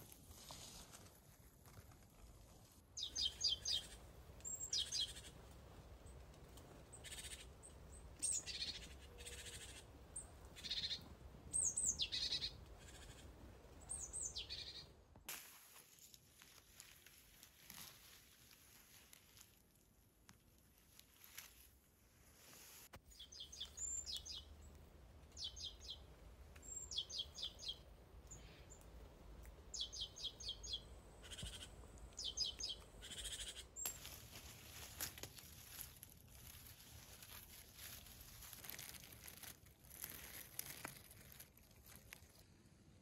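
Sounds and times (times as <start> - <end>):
faint rustles: 0.0 - 2.8, 33.8 - 42.6
songbird trilling: 11.6 - 13.2.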